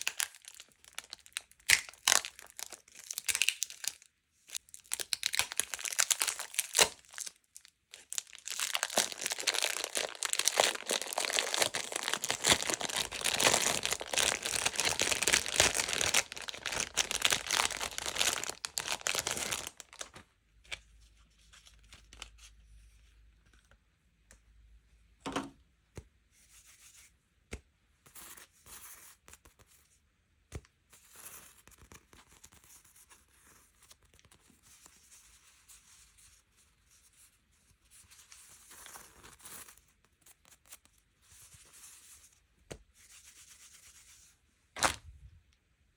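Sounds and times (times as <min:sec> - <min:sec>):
packaging torn open and crinkled: 0:00.0 - 0:20.2, 0:44.8 - 0:45.1.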